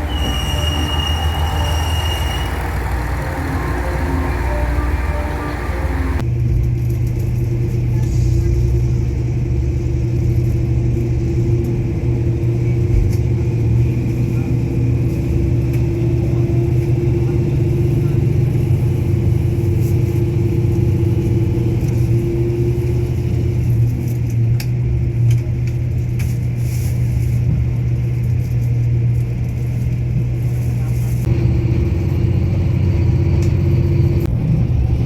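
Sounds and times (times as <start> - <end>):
low drone: 0.0 - 6.2
moving vehicle rumble: 0.0 - 35.0.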